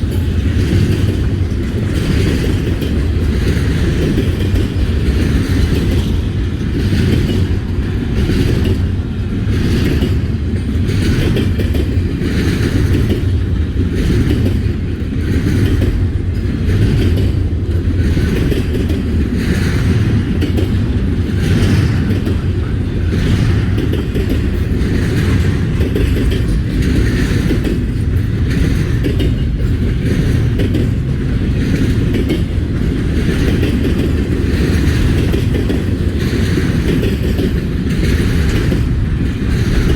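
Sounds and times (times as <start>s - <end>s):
freight train rumbling: 0.0s - 39.9s
train wheels clattering: 0.0s - 39.9s.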